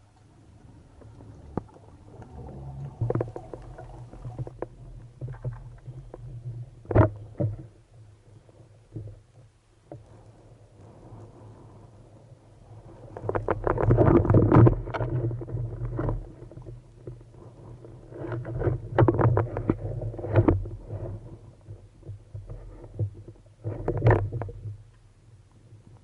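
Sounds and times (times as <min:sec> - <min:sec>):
low rumble: 0:00.0 - 0:06.8
water churning and bubbling: 0:00.0 - 0:24.8.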